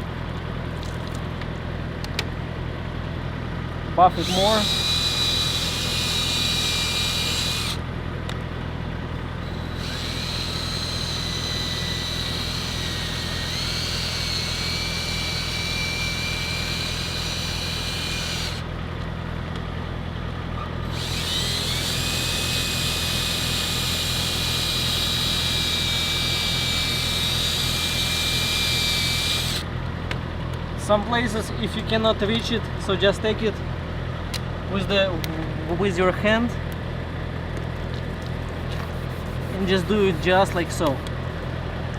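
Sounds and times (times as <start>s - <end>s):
steady low hum: 0.0s - 41.9s
electric drill whining: 4.1s - 7.8s, 9.4s - 18.7s, 20.8s - 29.7s.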